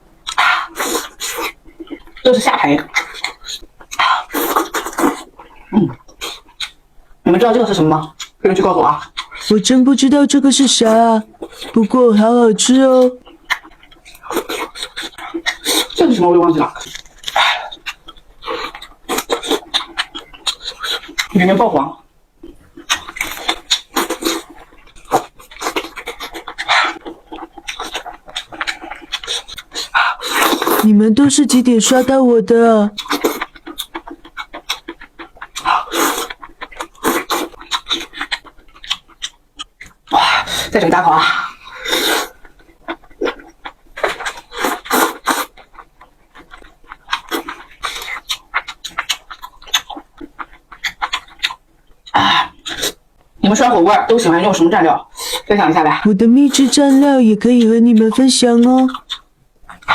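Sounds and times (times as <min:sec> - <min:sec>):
slurping: 0:00.2 - 0:06.8, 0:22.5 - 0:30.9, 0:33.0 - 0:53.0
wet chewing and smacking: 0:00.2 - 0:09.7, 0:10.4 - 0:32.1, 0:32.9 - 0:59.9
breathy slurp: 0:40.1 - 0:42.4.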